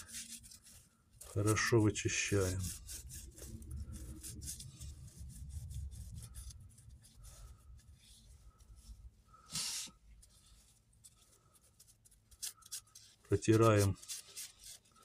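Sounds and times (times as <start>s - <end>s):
paper scratching on metal: 0.0s - 15.0s.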